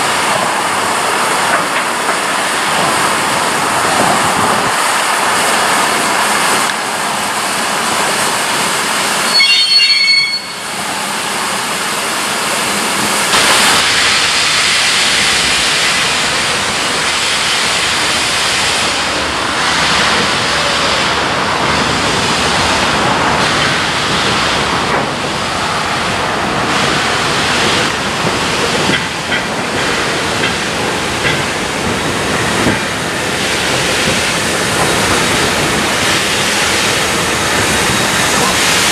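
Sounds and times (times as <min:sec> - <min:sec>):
steam train running past: 0:00.0 - 0:38.9
high-pitched squeal: 0:09.2 - 0:10.8.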